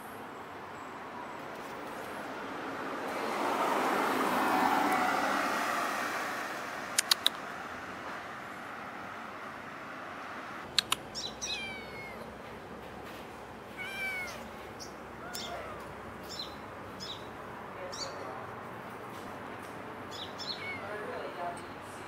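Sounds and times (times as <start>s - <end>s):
sharp clicks: 7.0s - 7.4s, 10.7s - 11.1s
kitten meowing: 11.4s - 12.3s, 13.7s - 14.5s, 15.2s - 15.9s, 20.4s - 21.0s.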